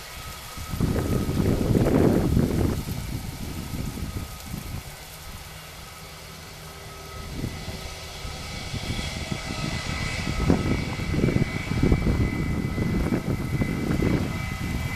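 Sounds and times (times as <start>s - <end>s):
jet engines whining: 0.0s - 14.9s.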